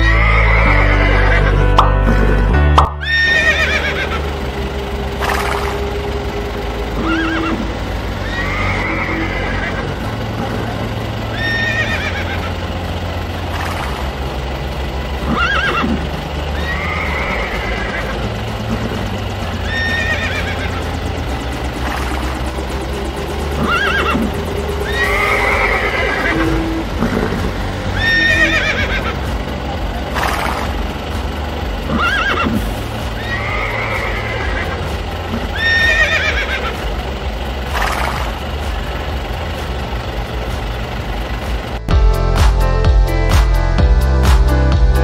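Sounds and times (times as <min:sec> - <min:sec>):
horse neighing: 0:00.0 - 0:01.6, 0:03.0 - 0:04.3, 0:07.0 - 0:10.1, 0:11.3 - 0:12.6, 0:15.3 - 0:16.0, 0:16.6 - 0:18.3, 0:19.6 - 0:20.9, 0:23.6 - 0:29.3, 0:31.9 - 0:36.9
low background hum: 0:00.0 - 0:42.4.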